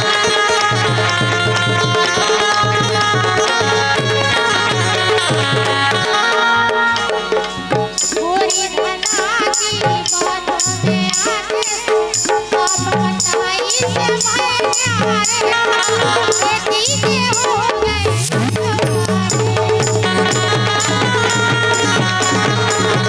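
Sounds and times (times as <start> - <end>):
tabla drum strokes: 0.0 - 23.0
quick high percussion beat: 7.3 - 23.0
wavering melodic line: 17.4 - 20.2.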